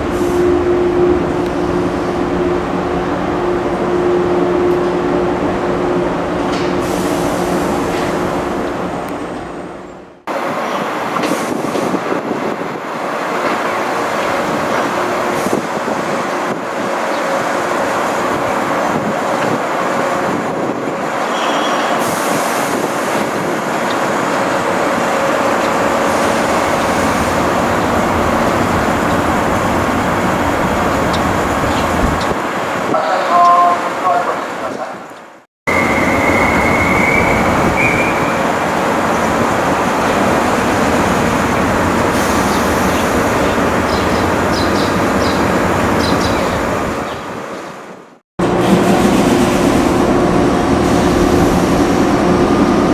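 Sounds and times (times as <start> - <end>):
electric train rumble and hiss: 0.0 - 34.7, 35.7 - 52.9.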